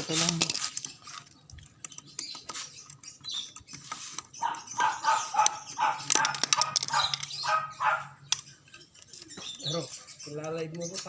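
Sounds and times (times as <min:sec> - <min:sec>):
dog barking: 0:04.4 - 0:08.2.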